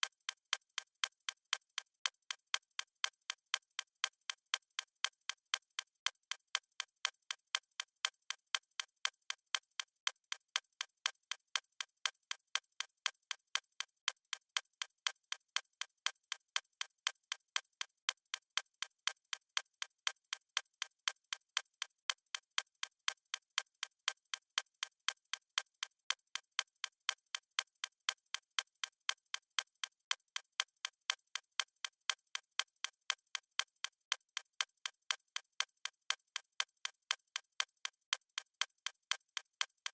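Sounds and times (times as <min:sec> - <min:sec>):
fast stopwatch ticking: 0:00.0 - 0:39.9.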